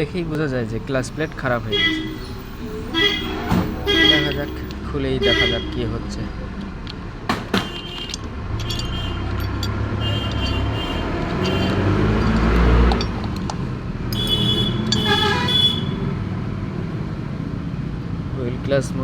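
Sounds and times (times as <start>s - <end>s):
vehicle horn: 1.6s - 6.0s, 7.6s - 9.4s, 10.0s - 12.1s, 14.2s - 16.1s.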